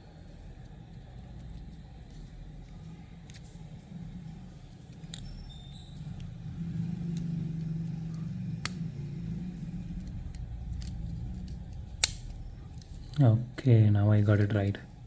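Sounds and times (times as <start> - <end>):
low rumble: 1.7 - 13.2.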